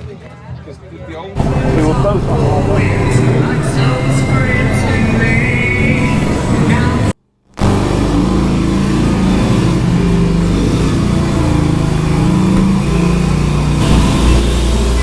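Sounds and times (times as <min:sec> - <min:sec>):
motorcycle engines revving: 0:01.4 - 0:15.0.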